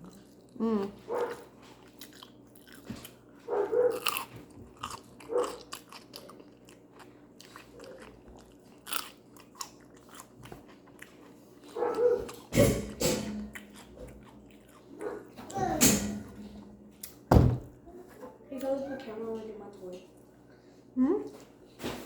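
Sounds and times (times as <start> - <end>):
chewing and crunching food: 0.0 - 15.6.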